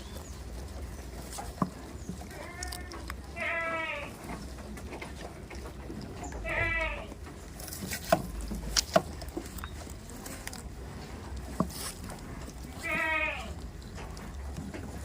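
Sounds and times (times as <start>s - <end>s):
goat bleating: 2.3s - 4.4s, 6.3s - 7.3s, 12.7s - 13.7s.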